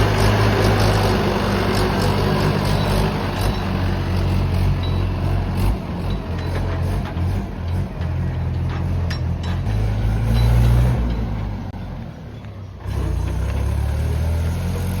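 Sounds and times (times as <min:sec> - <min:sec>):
diesel machinery engine running: 0:00.0 - 0:15.0.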